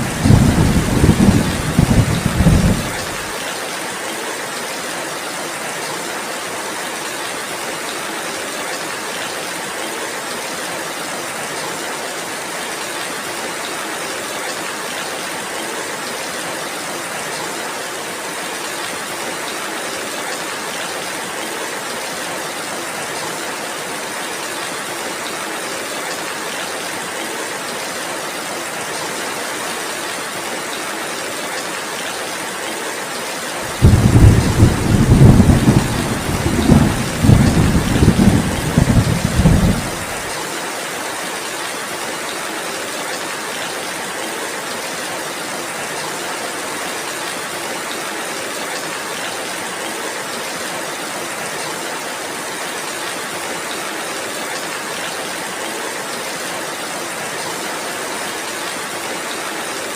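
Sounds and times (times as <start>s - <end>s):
low thunder rumble: 0.0s - 3.3s, 33.7s - 40.2s
heavy rain falling: 0.0s - 59.9s.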